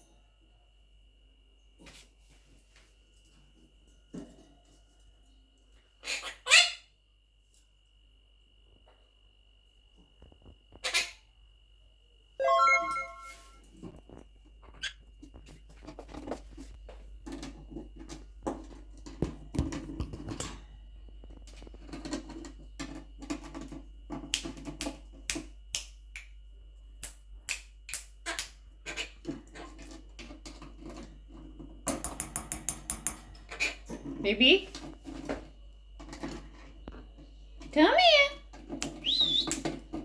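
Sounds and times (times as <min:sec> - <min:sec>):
parrot clicks and taps in cage: 0:24.1 - 0:26.3, 0:31.8 - 0:33.2.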